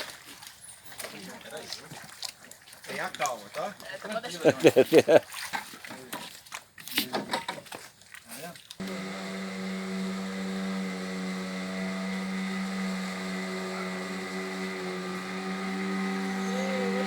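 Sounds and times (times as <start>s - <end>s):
motorboat engine humming: 8.8s - 17.0s.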